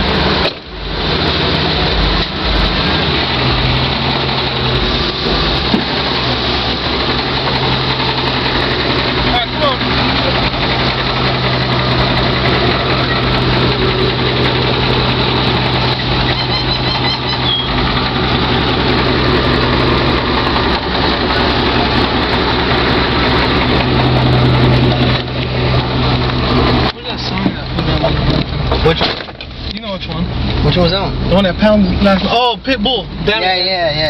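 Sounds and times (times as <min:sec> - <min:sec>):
pickup truck engine idling: 0:00.0 - 0:34.0.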